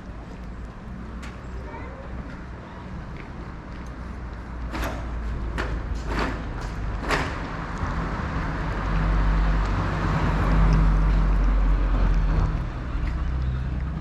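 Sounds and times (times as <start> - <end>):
vehicle engine passing by: 6.2 - 14.0.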